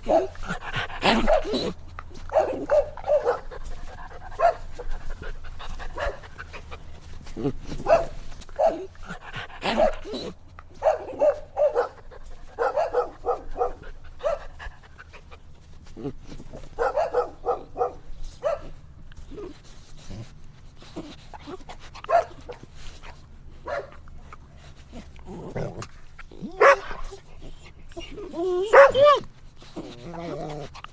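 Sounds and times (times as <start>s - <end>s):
puppies barking and yipping: 0.0s - 7.0s, 7.6s - 14.5s, 26.4s - 30.9s.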